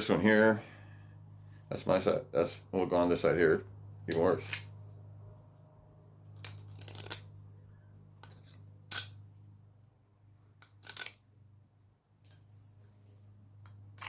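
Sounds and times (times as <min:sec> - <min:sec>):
low steady hum: 0:00.0 - 0:14.0
steel scribe scratching metal: 0:08.2 - 0:09.1.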